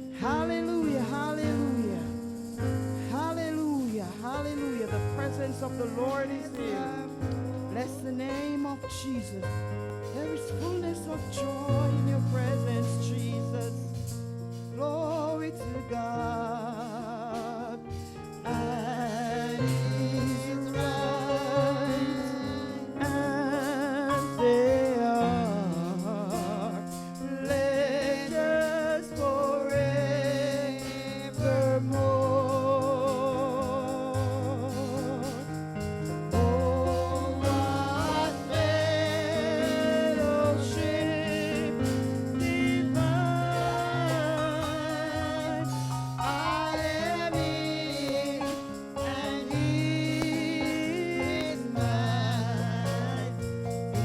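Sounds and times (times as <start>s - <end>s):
person singing with vibrato: 0.0s - 54.0s.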